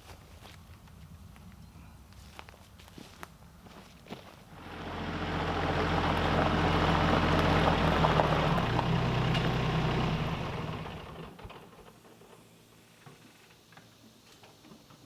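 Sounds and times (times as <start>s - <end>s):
motor vehicle engine passing by: 4.5s - 11.8s.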